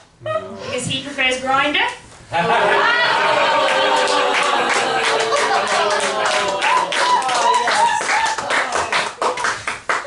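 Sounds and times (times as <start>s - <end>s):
laughter: 2.3s - 3.9s
voices cheering: 2.5s - 9.1s
audience applauding: 2.8s - 10.0s.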